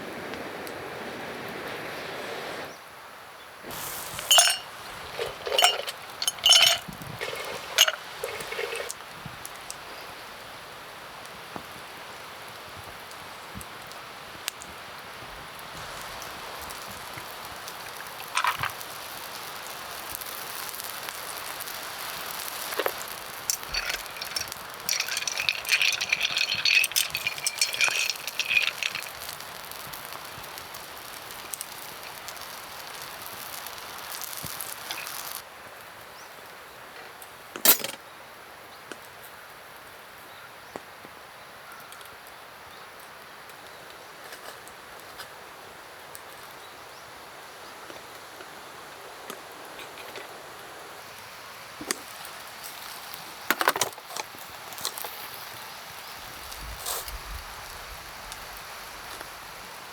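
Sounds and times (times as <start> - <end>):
metallic rattling and clinking: 3.7 - 8.9, 22.7 - 29.8.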